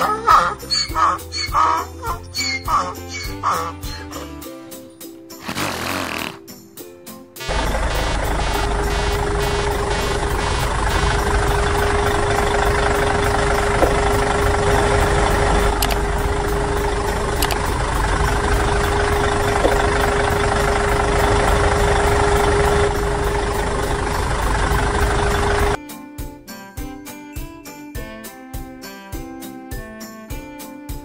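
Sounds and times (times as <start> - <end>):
constant hum: 7.5 - 25.8
tractor engine idling: 7.5 - 25.8.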